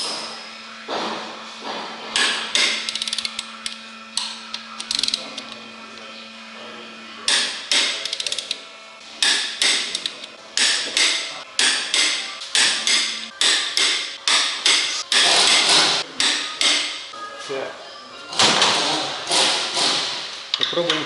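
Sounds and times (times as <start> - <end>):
ratchet clicking: 2.5 - 5.2, 7.8 - 8.6
torque wrench clicks: 2.5 - 5.2, 8.0 - 8.6.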